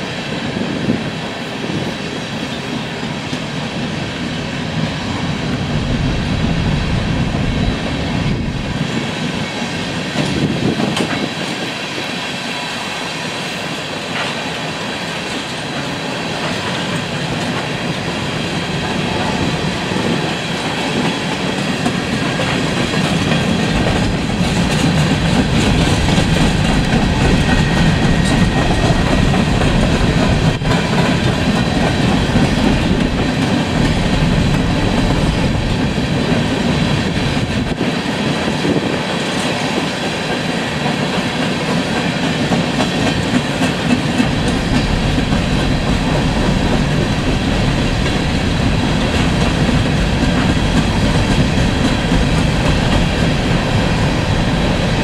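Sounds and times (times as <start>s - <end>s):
train wheels rumbling on track: 0.0s - 55.0s
wheels clickety-clack: 8.8s - 11.8s, 15.2s - 55.0s.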